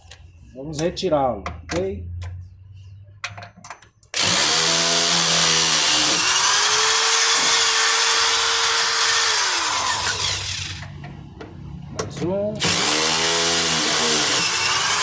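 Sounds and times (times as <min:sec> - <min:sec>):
cordless screwdriver running: 0:04.2 - 0:10.8, 0:12.6 - 0:15.0.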